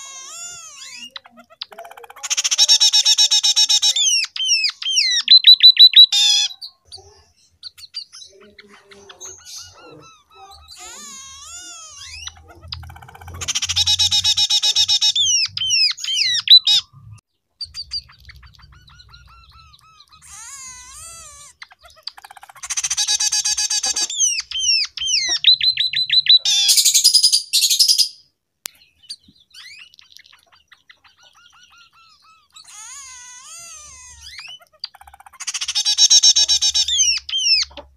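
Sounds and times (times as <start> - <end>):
bird trills and whistles: 0.0 - 6.6
bird twittering: 0.0 - 37.9.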